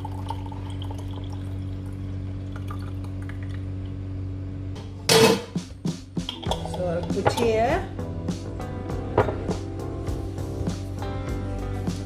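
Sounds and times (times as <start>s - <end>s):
liquid trickling and dripping: 0.0s - 4.0s
steady low hum: 0.0s - 11.6s.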